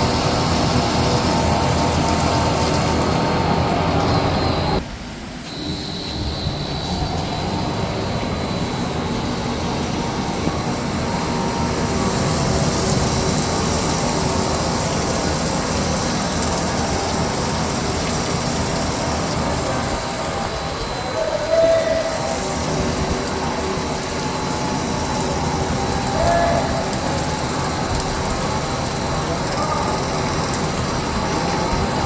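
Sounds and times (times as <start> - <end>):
thin high whine: 4.0 - 13.4
lathe running: 6.7 - 32.0.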